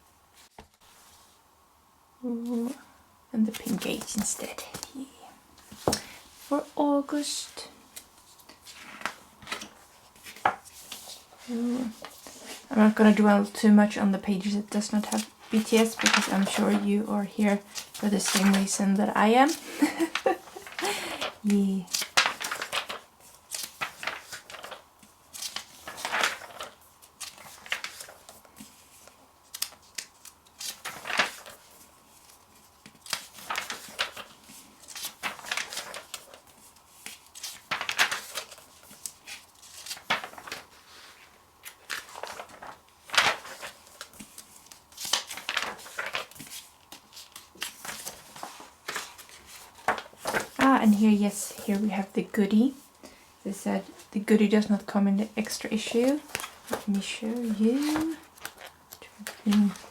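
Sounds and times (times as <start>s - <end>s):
magazine pages turning: 7.9s - 13.2s, 14.8s - 51.9s, 55.4s - 59.9s.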